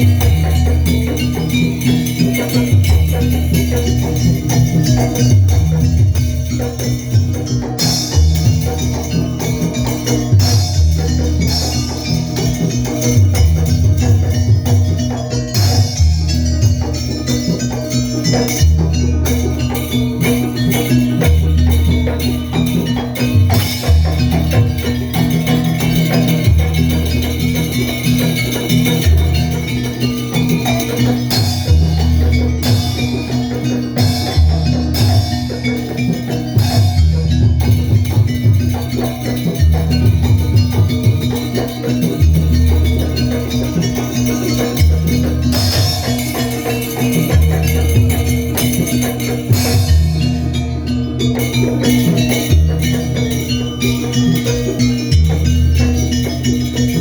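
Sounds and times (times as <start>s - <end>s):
metallic jingling: 0.0s - 57.0s
percussion ensemble music: 0.0s - 57.0s.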